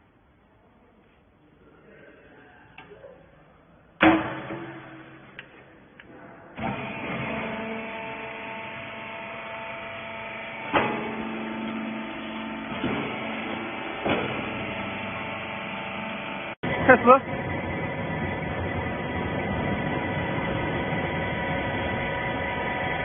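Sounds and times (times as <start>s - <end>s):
baler motor humming: 6.6s - 23.0s
sharp machine knocks: 10.7s - 11.8s, 12.7s - 14.8s.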